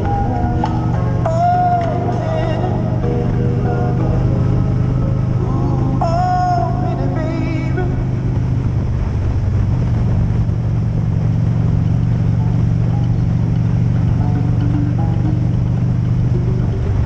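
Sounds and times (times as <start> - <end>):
motorcycle engine droning: 0.0 - 17.0
road and wind noise: 0.0 - 17.0.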